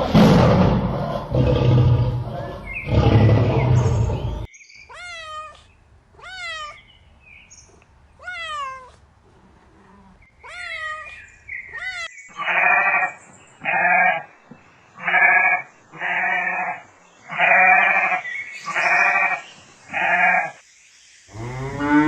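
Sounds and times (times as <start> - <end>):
big cat roaring: 0.0 - 4.5, 21.3 - 22.0
cat meowing: 4.9 - 6.9, 8.2 - 9.0, 9.7 - 12.1
sheep bleating: 15.0 - 20.6.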